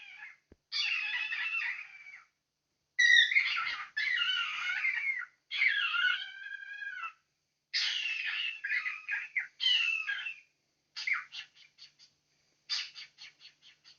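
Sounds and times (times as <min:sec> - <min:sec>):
cockatiel harsh raspy calls: 0:00.0 - 0:02.3, 0:03.0 - 0:07.2, 0:07.8 - 0:12.1, 0:12.7 - 0:13.9
cockatiel short chirps: 0:12.7 - 0:13.9.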